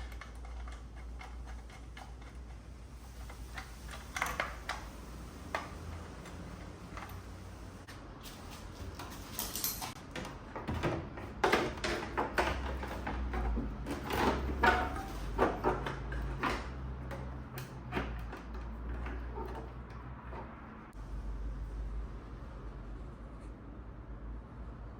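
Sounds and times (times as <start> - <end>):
knocks and clatter of handling: 0.0 - 7.3, 8.4 - 20.9.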